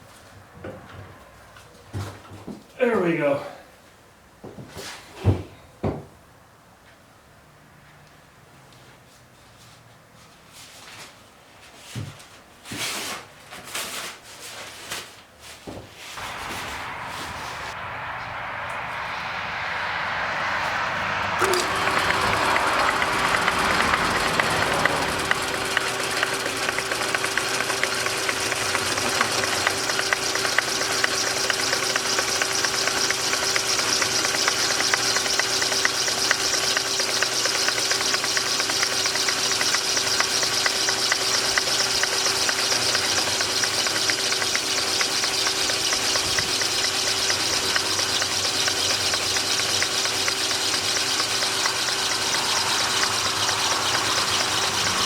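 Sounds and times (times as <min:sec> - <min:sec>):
held tone: 0:16.2 - 0:26.8
hiss: 0:16.2 - 0:26.8, 0:47.0 - 0:55.0
machine humming: 0:16.2 - 0:55.0.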